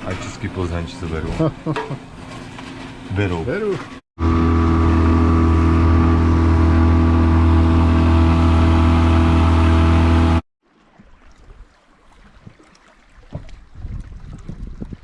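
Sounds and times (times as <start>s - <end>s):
boat engine humming: 0.0s - 10.4s.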